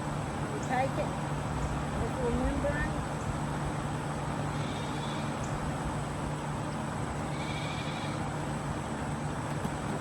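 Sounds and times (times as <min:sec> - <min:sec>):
constant low hum: 0:00.0 - 0:10.0
faint high-pitched calls: 0:04.5 - 0:05.5.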